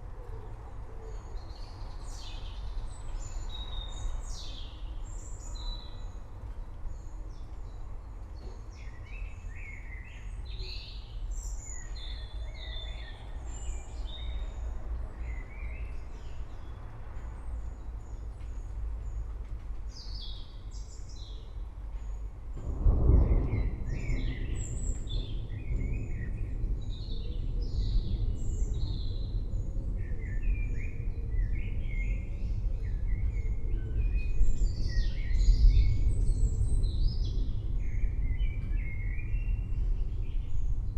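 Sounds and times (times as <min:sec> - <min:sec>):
distant thunder: 0:22.5 - 0:31.8.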